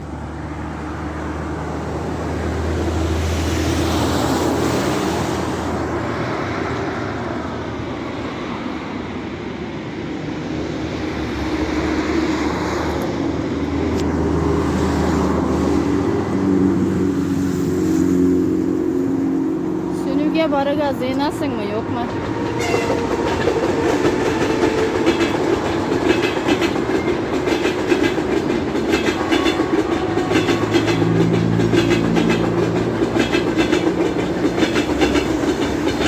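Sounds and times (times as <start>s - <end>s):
vehicle engine humming: 11.1s - 36.0s.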